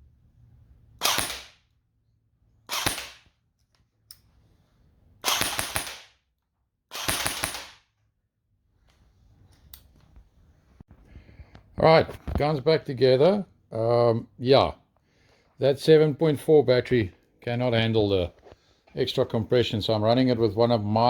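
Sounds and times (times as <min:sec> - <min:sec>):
airsoft rifle shots: 0:01.0 - 0:01.6, 0:02.7 - 0:03.3, 0:05.2 - 0:06.2, 0:06.9 - 0:07.9.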